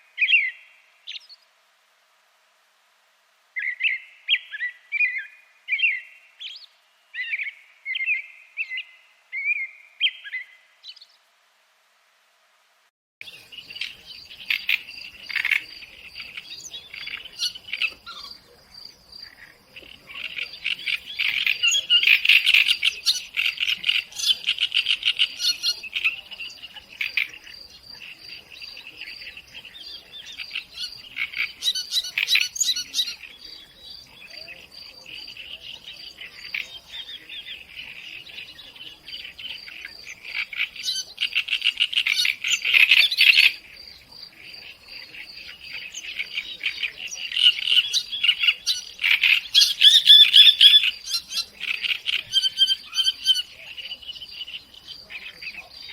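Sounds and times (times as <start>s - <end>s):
birds chirping and singing: 13.2s - 55.9s.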